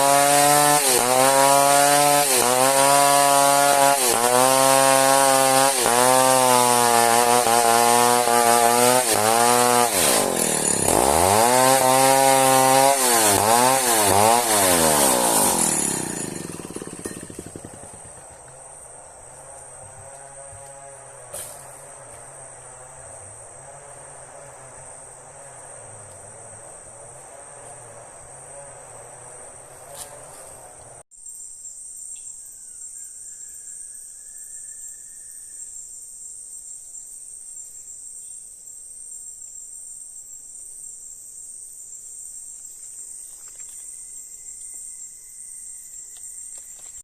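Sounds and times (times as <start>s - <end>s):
high-pitched insect chorus: 31.2s - 47.0s.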